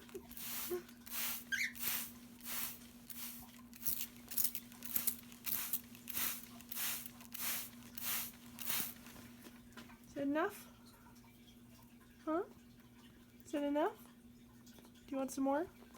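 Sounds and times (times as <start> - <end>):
spray bottle hissing squirts: 0.0 - 9.2
cockatiel chirp: 1.5 - 1.9.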